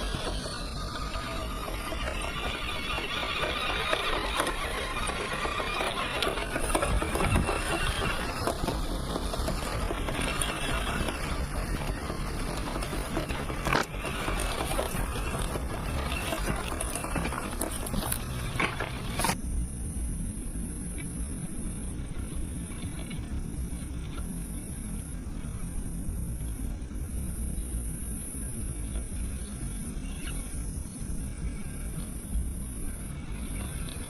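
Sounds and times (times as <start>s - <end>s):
tyres crunching over stones: 0.0s - 19.4s
rc car motor and gears whirring: 0.0s - 34.0s.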